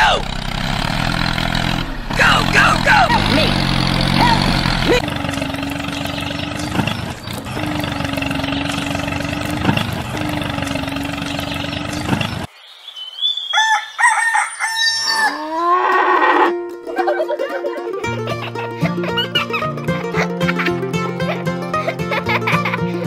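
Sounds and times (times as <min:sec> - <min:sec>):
small motor humming: 0:00.1 - 0:12.5
hens clucking: 0:02.2 - 0:12.5
rooster crowing: 0:13.4 - 0:16.4.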